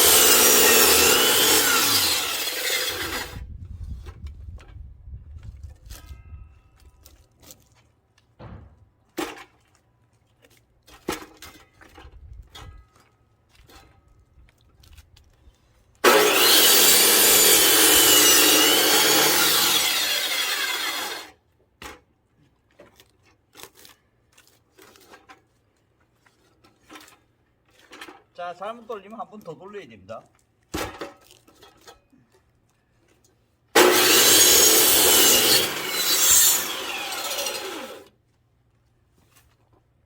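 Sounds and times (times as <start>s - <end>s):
power saw cutting log: 0.0s - 3.4s, 16.0s - 21.4s, 33.7s - 38.1s
knocks and clunks: 8.4s - 9.5s.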